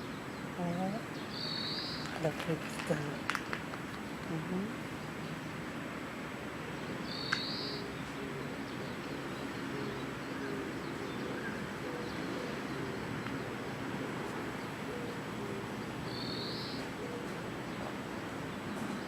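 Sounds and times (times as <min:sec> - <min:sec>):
outdoor background noise: 0:00.0 - 0:19.0
low bird cooing: 0:04.2 - 0:05.6, 0:06.7 - 0:19.0
high bird chirp: 0:07.1 - 0:07.8.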